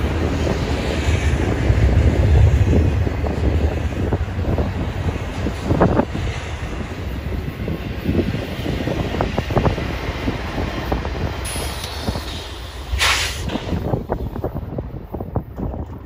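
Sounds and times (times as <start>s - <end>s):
freight train rumbling past: 0.0s - 16.0s
loud hiss: 11.4s - 13.9s.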